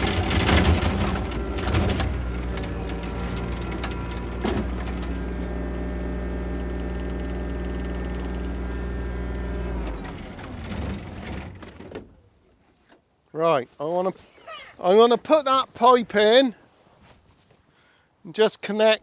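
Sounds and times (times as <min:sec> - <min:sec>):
farm machine engine idling: 0:00.0 - 0:05.5.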